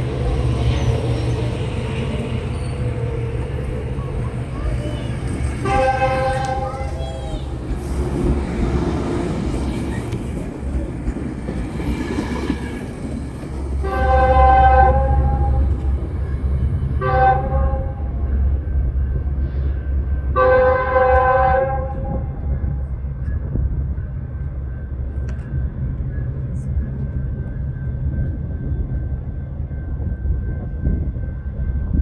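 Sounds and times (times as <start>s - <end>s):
diesel train engine rumbling: 0.0s - 32.0s
train horn blasts: 5.6s - 6.8s, 13.8s - 15.9s, 17.0s - 18.1s, 20.3s - 22.8s.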